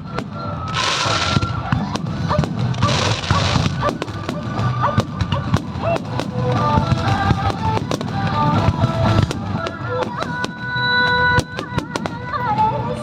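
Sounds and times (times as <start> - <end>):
fireworks bursting and crackling: 0.0 - 13.0
music with sung-like melody: 0.0 - 13.0.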